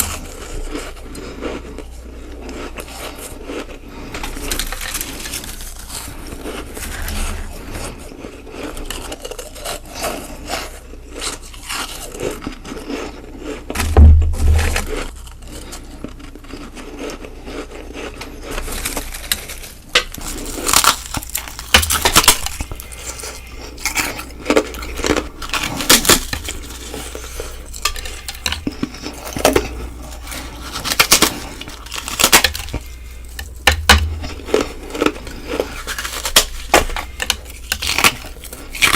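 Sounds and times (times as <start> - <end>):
ice being bitten and chewed: 0.0 - 14.0, 14.6 - 38.9
loud low thump: 13.8 - 15.0.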